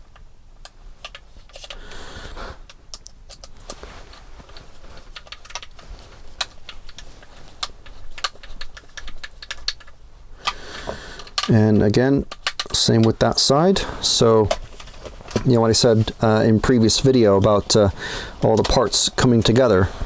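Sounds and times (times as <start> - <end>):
plastic and metal parts clicking: 0.1 - 1.8, 2.6 - 3.8, 4.4 - 10.6, 11.2 - 13.3.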